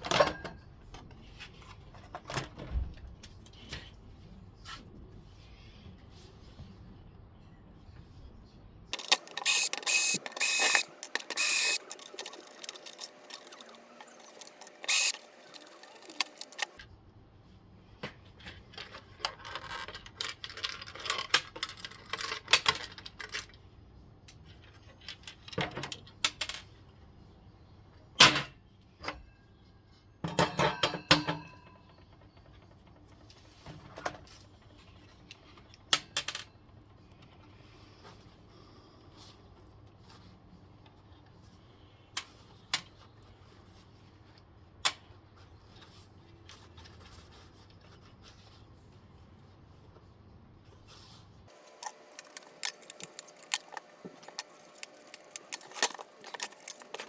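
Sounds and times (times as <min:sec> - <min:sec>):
metal tools clinking and rattling: 0:51.5 - 0:57.0.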